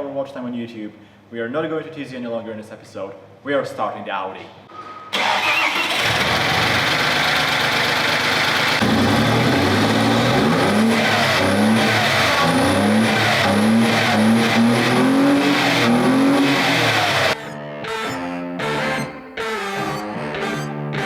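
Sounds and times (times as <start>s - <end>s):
car engine revving: 5.3s - 17.4s.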